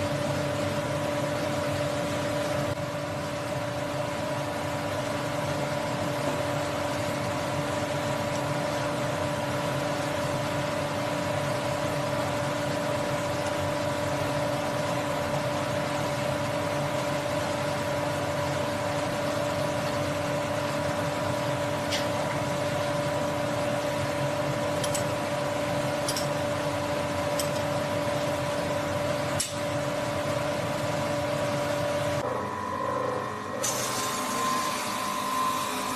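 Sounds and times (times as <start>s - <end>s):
milling machine whining: 17.8s - 35.9s.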